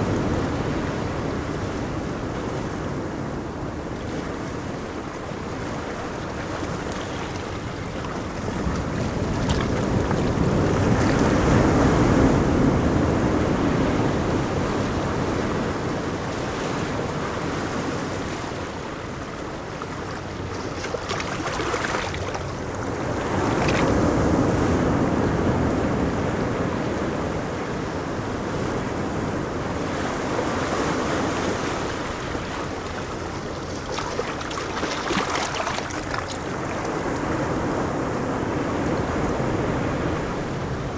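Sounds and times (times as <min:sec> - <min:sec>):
ocean surf breaking: 0:00.0 - 0:40.9
wind on microphone: 0:00.0 - 0:40.9.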